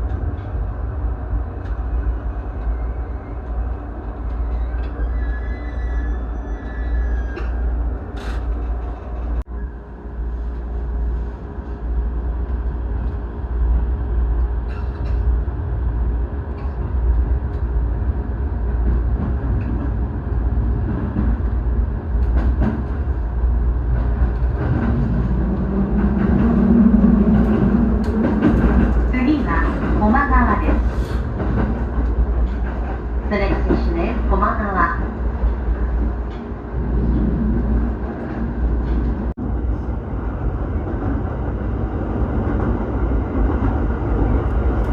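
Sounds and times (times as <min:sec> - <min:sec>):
train rumbling on rails: 0:00.0 - 0:44.9.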